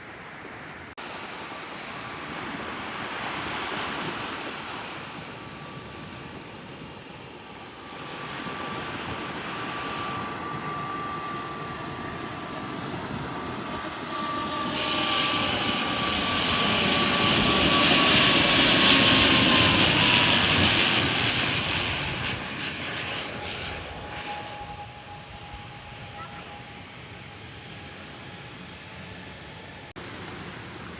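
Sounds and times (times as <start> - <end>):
jet airliner passing overhead: 0.3 - 30.9.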